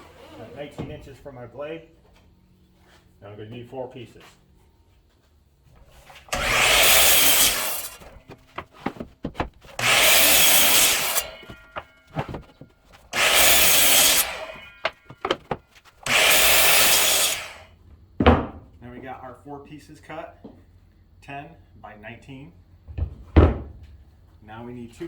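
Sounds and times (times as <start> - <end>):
power saw cutting boards: 6.0 - 17.8
boards knocking into place: 6.3 - 15.7, 18.2 - 18.7, 22.9 - 23.9.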